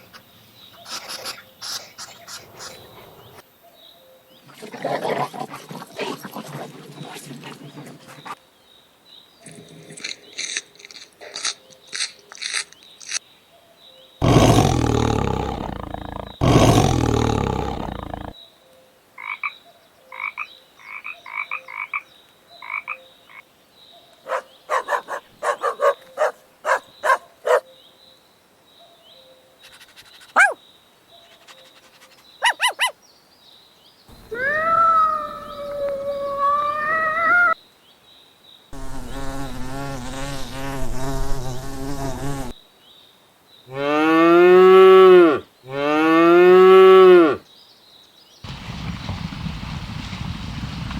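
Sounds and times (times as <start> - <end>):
animal clicking pulses: 14.2 - 18.3
croaking pulses: 14.2 - 18.4, 34.2 - 37.6, 38.8 - 42.6
loud rough animal calls: 14.2 - 18.4, 34.1 - 37.6
wavering animal call: 34.2 - 37.6.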